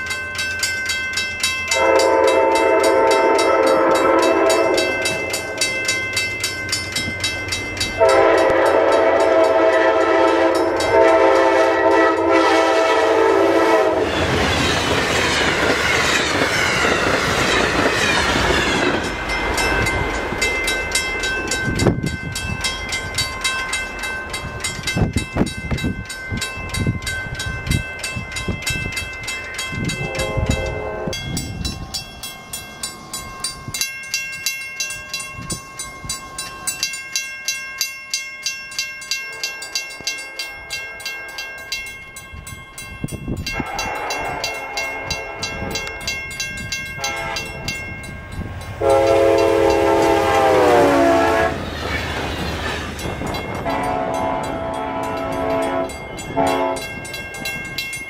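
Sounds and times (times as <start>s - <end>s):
crossing bell ringing: 0.0s - 58.0s
train horn blasts: 1.7s - 5.3s, 8.0s - 14.2s, 30.0s - 31.2s, 43.5s - 46.2s, 46.9s - 47.7s, 48.8s - 51.6s, 53.6s - 57.0s
train rushing past: 1.7s - 37.0s, 39.5s - 58.0s
wheels clacking over rail joints: 14.0s - 30.8s, 43.4s - 58.0s.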